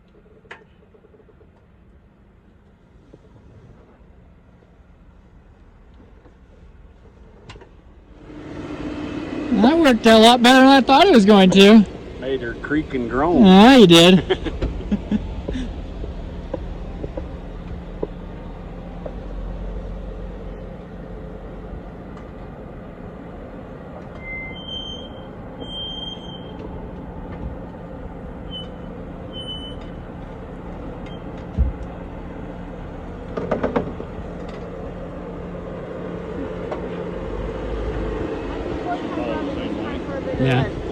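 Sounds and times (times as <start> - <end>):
engine running low: 0.0 - 40.9
short high squeaks: 24.1 - 26.6, 28.4 - 30.0
thump: 31.5 - 31.8
rattle of knocks: 33.3 - 34.6.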